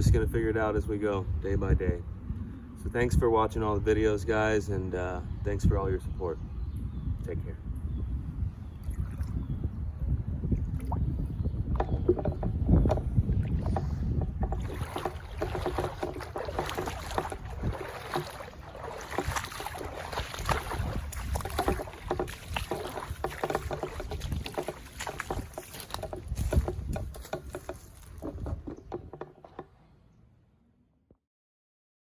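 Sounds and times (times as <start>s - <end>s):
wind rumbling on microphone: 0.0s - 30.2s
floodwater sloshing and splashing: 8.7s - 29.9s.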